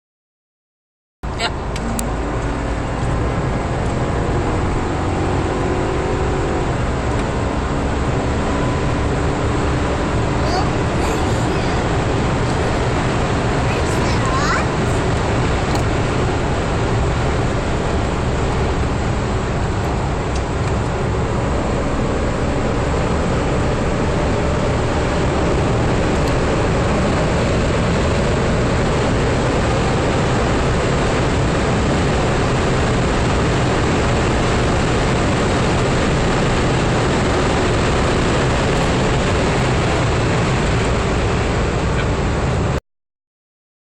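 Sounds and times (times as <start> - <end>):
car engine rumble: 1.2 - 42.8
road noise: 1.2 - 42.8.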